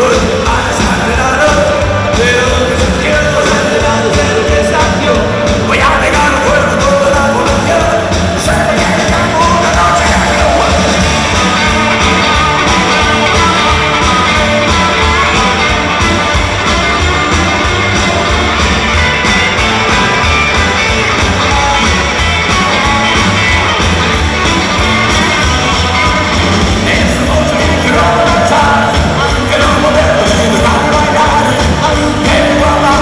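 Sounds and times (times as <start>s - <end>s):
rock band playing: 0.0s - 33.0s.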